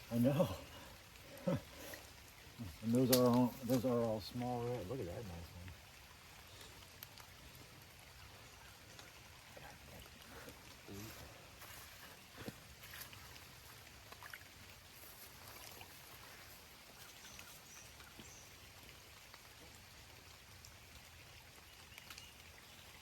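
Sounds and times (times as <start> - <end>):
faint stream trickling: 0.0 - 23.0
light ticks: 6.4 - 7.4.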